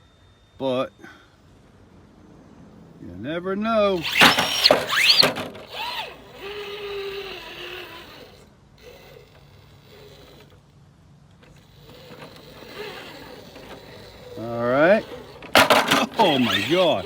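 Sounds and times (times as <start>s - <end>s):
tyres scrabbling on rock: 4.0s - 10.6s, 11.4s - 17.0s
electric motor whining: 4.0s - 10.7s, 11.4s - 17.0s.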